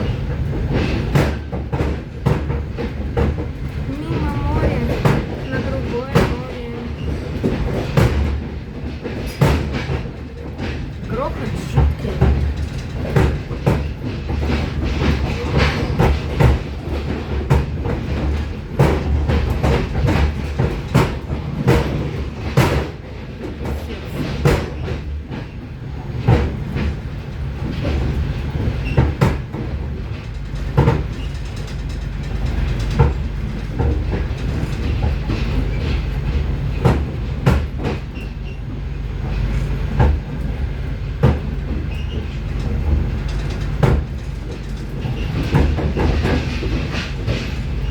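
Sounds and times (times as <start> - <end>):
rail joint knocks and clatter: 0.0 - 47.9
train wheels rumbling on rails: 0.0 - 47.9.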